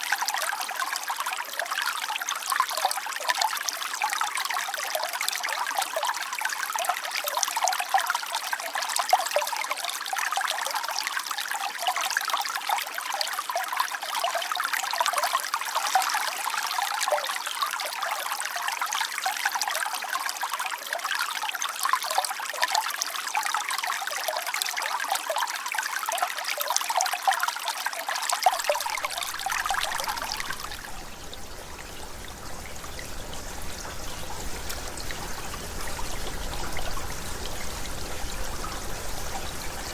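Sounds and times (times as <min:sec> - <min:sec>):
river babbling: 0:28.5 - 0:39.9.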